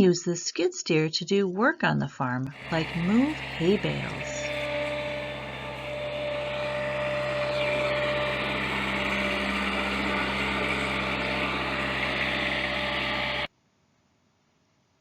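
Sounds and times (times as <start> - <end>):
loader engine running: 2.5 - 13.5.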